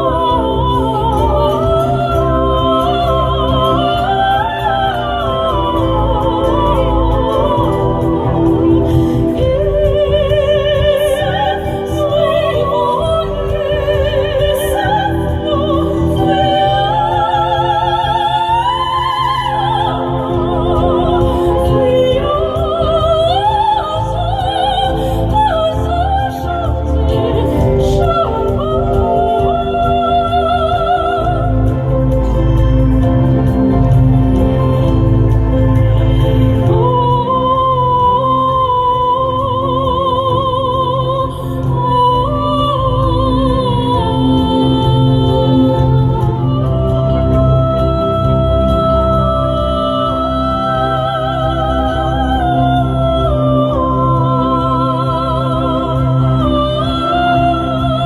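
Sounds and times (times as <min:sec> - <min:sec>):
instrumental accompaniment with bass: 0:00.0 - 0:58.0.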